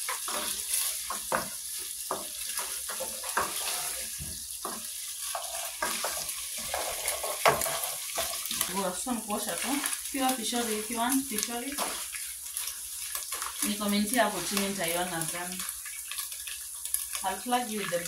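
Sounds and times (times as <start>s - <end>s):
meat and vegetables sizzling: 0.0s - 18.0s
spoon scraping a pot: 2.2s - 8.8s.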